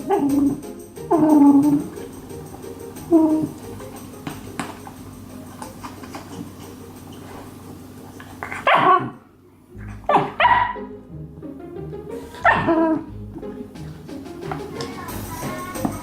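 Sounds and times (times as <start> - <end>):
background music: 0.0 - 8.1, 9.7 - 16.0
dog barking: 8.4 - 9.2, 10.0 - 10.9, 12.4 - 13.1.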